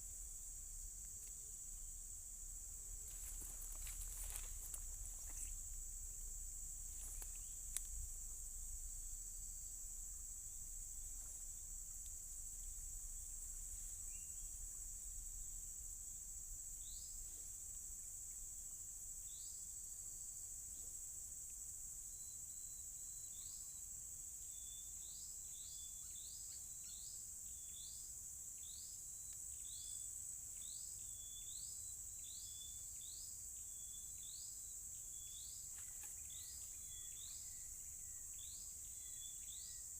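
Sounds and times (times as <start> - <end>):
high-pitched insect drone: 0.0 - 20.8.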